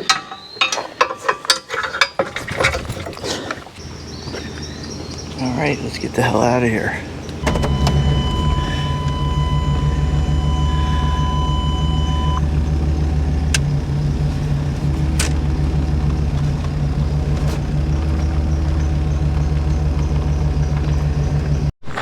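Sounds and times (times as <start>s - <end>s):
truck engine idling: 3.8s - 21.7s
steady high beep: 7.4s - 12.4s.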